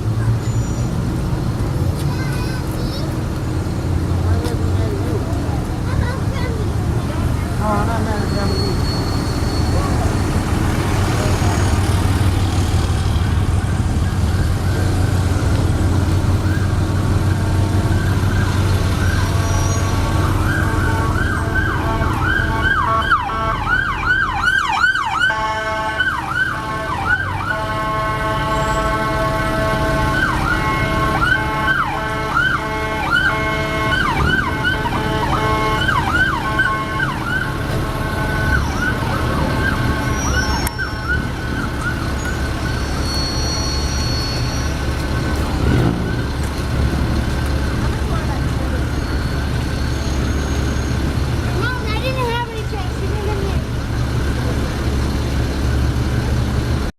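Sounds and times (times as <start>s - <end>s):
traffic rumble: 0.0s - 56.9s
emergency siren yelping: 16.2s - 19.5s, 20.2s - 27.8s, 29.8s - 43.1s
horn blasts: 19.2s - 23.8s, 25.2s - 41.1s.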